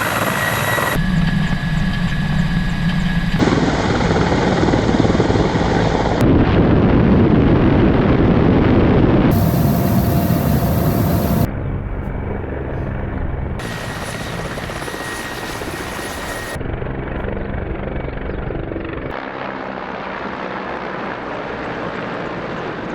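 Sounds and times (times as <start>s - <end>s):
helicopter rotor and engines: 0.0s - 22.9s
rushing noise: 9.3s - 11.5s.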